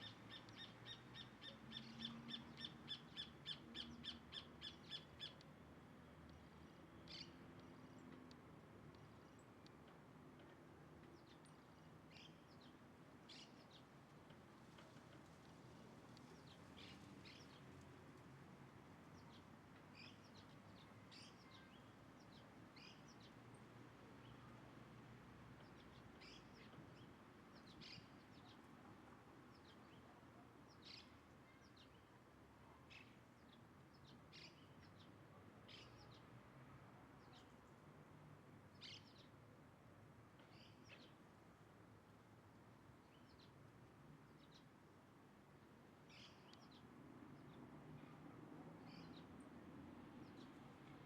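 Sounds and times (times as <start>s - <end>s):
faint bird chirps: 19.3s - 21.9s.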